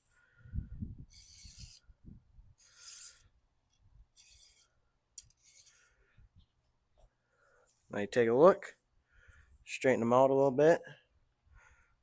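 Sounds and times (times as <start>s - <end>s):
fishing rod sections sliding: 1.1s - 1.9s, 2.6s - 3.3s, 4.1s - 6.0s.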